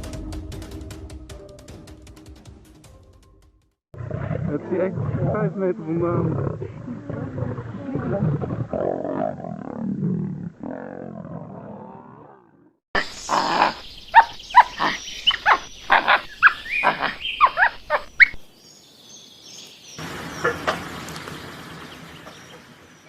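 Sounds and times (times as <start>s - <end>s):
sharp animal calls: 13.0s - 18.5s, 20.0s - 23.0s
soft noise with faint calls: 13.0s - 23.0s.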